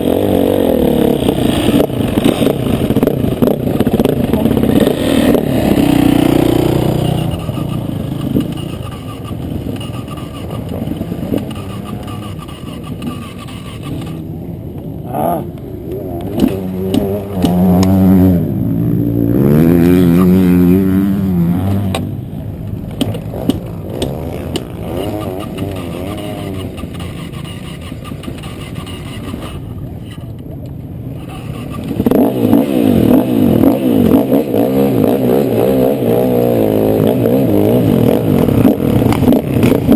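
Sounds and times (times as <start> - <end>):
motocross bike engine revving: 0.0 - 29.9, 31.2 - 39.9.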